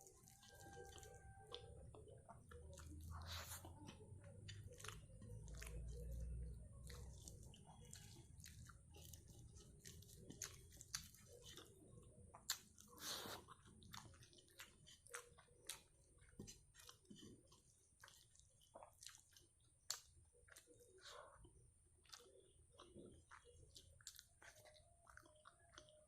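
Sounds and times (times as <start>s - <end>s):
person chewing food: 0.0s - 26.0s.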